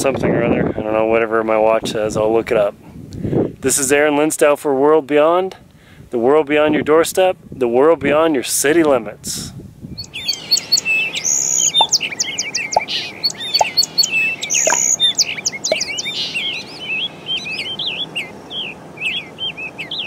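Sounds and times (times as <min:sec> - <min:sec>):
birds chirping and singing: 0:10.0 - 0:20.0.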